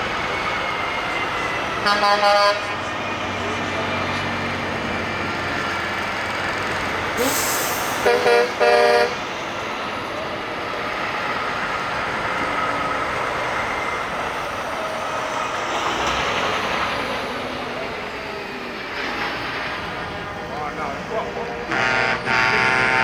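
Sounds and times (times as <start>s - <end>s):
heavy trucks rumbling past: 0.0s - 23.0s
truck horn blast: 1.8s - 2.9s, 7.2s - 9.3s, 21.6s - 23.0s.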